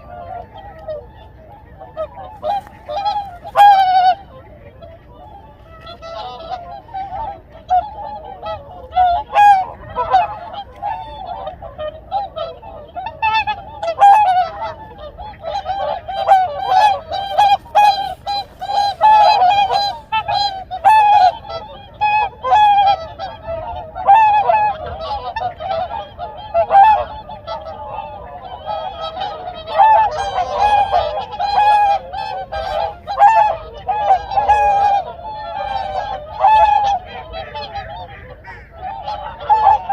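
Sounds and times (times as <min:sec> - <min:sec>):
swans honking: 0:00.0 - 0:39.9.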